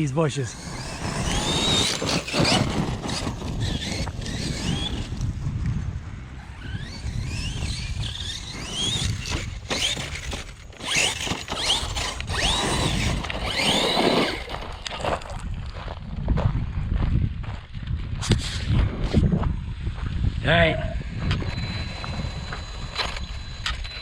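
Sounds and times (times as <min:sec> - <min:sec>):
electric motor whining: 0:00.0 - 0:15.0, 0:21.0 - 0:24.0.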